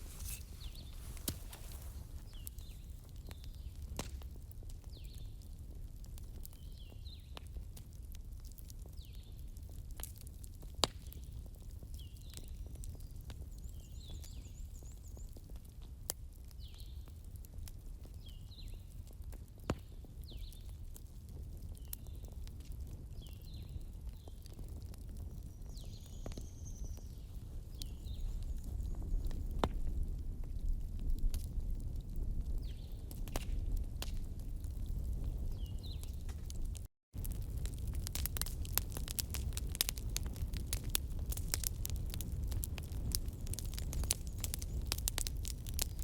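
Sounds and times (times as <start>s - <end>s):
campfire crackling: 0.0s - 46.0s
fire popping: 0.0s - 46.0s
birds chirping: 0.1s - 2.9s.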